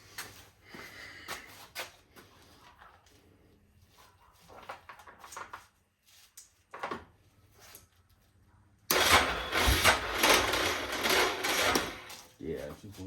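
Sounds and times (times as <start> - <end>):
rough mechanical clatter: 8.9 - 12.2.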